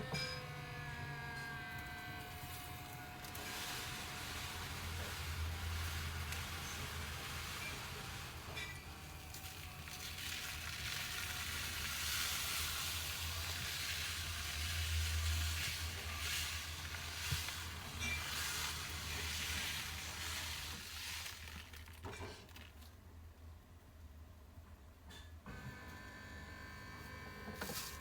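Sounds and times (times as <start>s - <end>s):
cat litter pouring: 2.2s - 23.0s, 27.5s - 28.0s.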